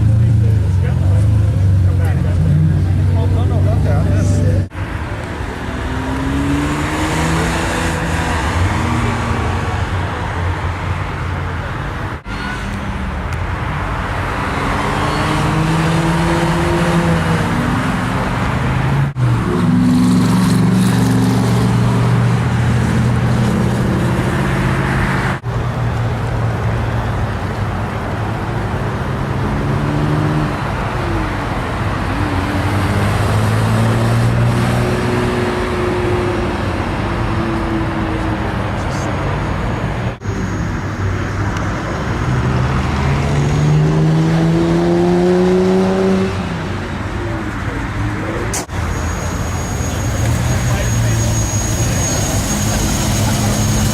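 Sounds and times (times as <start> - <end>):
sports car engine revving: 42.3 - 48.6.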